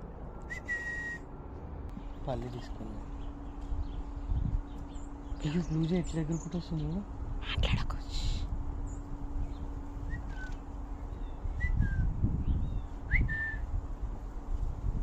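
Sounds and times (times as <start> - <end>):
low rumble: 0.0 - 15.0
soft whistled calls: 0.4 - 1.2, 9.6 - 13.7.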